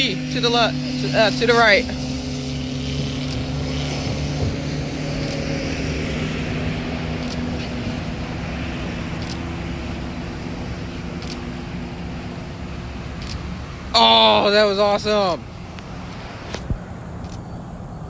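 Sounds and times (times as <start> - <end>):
motor hum: 0.0 - 14.0
road traffic rush: 0.0 - 18.0.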